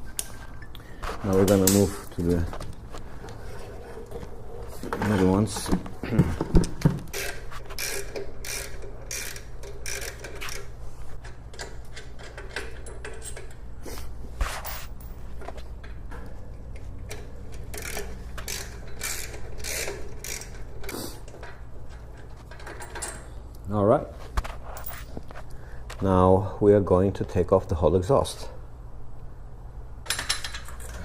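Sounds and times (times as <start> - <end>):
socket ratchet clicking: 7.1 - 10.7, 17.6 - 20.7.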